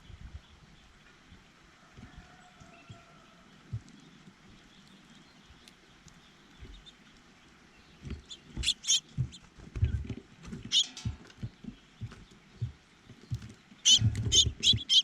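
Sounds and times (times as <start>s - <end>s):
birds tapping and knocking: 7.9s - 15.0s
high bird chips: 8.3s - 9.1s.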